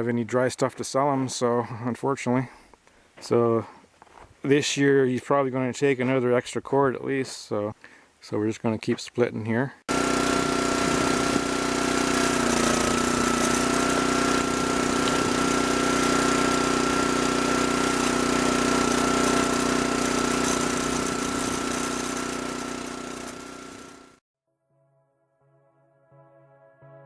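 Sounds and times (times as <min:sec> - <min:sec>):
small petrol engine running: 0:09.9 - 0:24.2.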